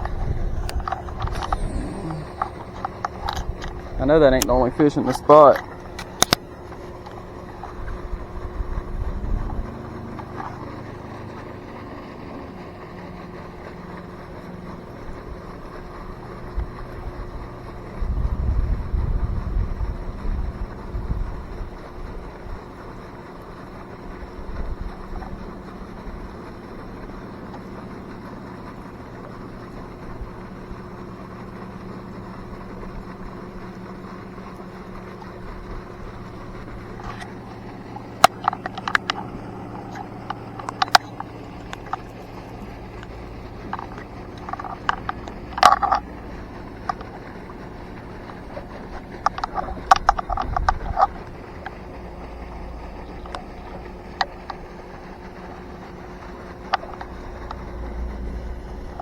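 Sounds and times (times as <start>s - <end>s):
boat motor humming: 0.0s - 59.0s
sharp clicks and knocks: 38.2s - 46.1s, 49.0s - 51.9s.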